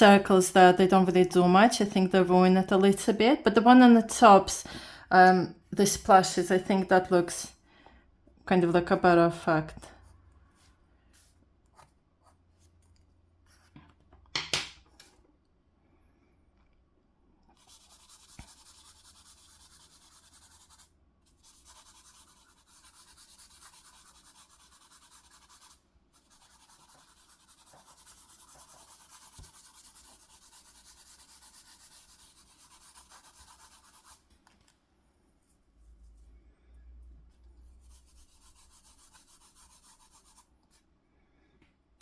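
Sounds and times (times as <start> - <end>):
drawing tool rubbing on paper: 17.6 - 34.2, 37.7 - 40.5.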